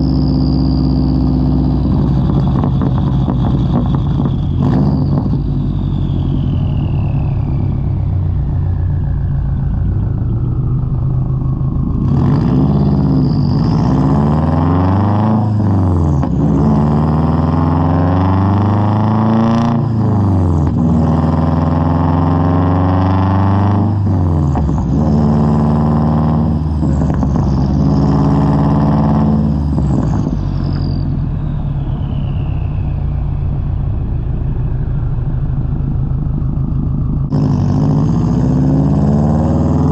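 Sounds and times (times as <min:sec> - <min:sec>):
high whistle falling in pitch: 0:00.0 - 0:16.1, 0:29.2 - 0:37.3
car engine revving: 0:00.0 - 0:39.9.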